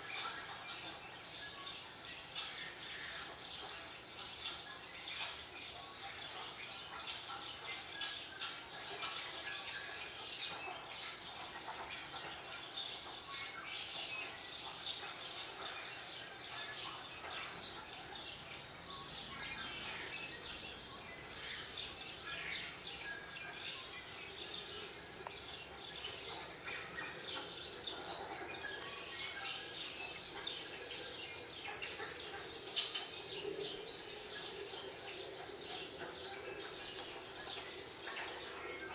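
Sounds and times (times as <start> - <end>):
small birds chirping and twittering: 0.0 - 38.9.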